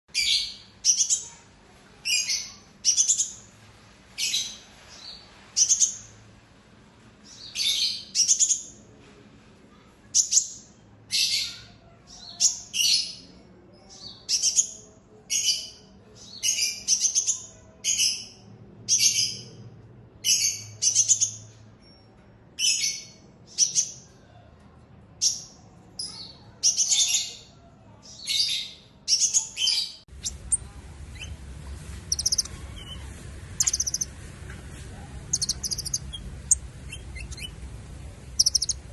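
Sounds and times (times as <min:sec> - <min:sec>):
bird chirping in rapid bursts: 0:28.4 - 0:34.2, 0:34.8 - 0:38.9.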